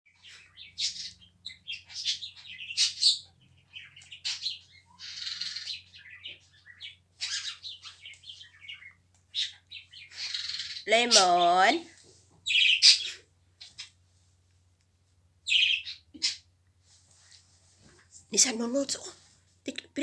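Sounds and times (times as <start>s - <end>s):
bird chirping: 0.1s - 11.8s, 12.4s - 14.0s, 15.4s - 16.6s
harsh raspy bird calls: 0.3s - 11.7s, 12.4s - 14.0s, 15.5s - 16.5s.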